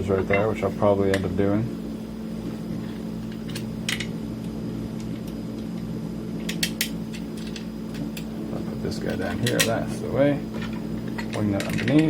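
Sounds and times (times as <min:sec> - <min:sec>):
low electrical hum: 0:00.0 - 0:12.0
parts clicking and rustling: 0:06.5 - 0:08.3, 0:09.0 - 0:12.0.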